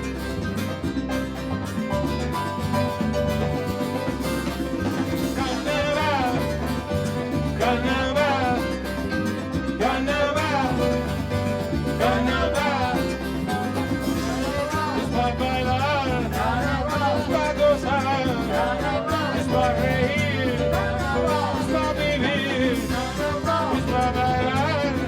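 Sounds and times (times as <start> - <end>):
melodic lead runs: 0.0 - 17.9
band playing salsa music: 0.0 - 25.0.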